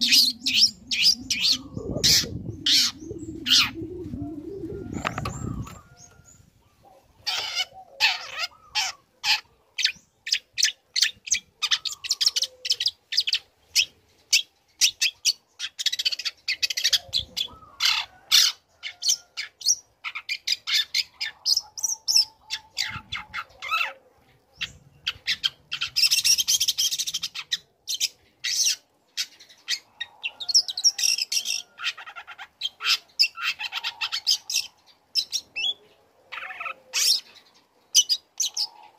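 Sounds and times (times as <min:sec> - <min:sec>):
bird chattering song: 0:00.0 - 0:03.8, 0:19.4 - 0:38.9.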